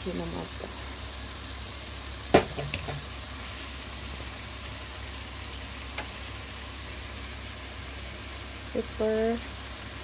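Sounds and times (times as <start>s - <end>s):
food sizzling in a wok: 0.0s - 10.0s.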